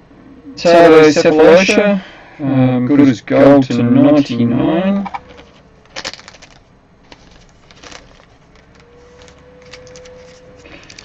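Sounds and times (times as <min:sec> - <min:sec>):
card packaging crackling: 0:05.2 - 0:11.0.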